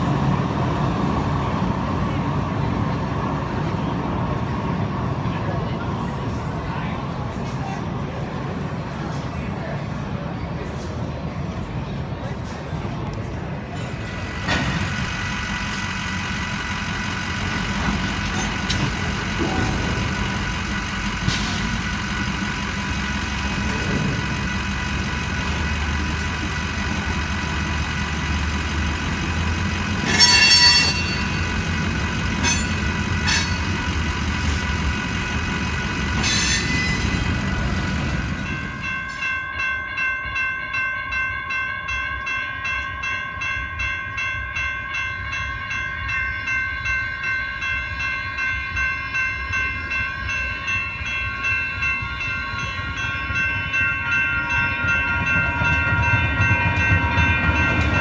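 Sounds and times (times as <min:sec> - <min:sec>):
freight train rumbling past: 0:00.0 - 0:58.0
railroad crossing bells ringing: 0:13.4 - 0:58.0
electronic crossing bell: 0:30.1 - 0:31.7, 0:38.4 - 0:58.0.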